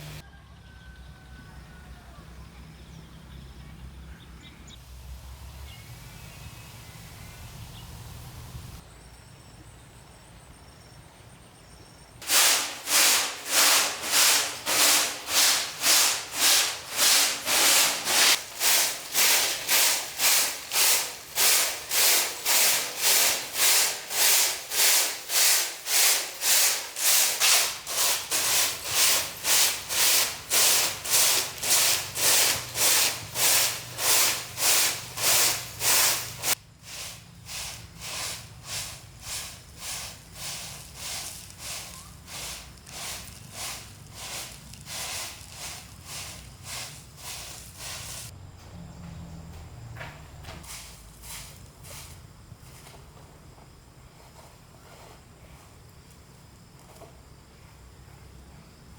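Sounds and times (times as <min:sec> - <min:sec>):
hand tool rasping on bamboo: 0:12.2 - 0:36.6.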